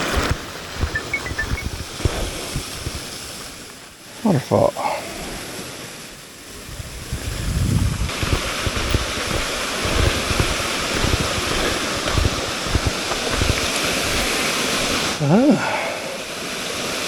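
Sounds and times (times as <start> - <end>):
waterfall rushing: 0.0 - 17.0
wind buffeting microphone: 6.5 - 15.2.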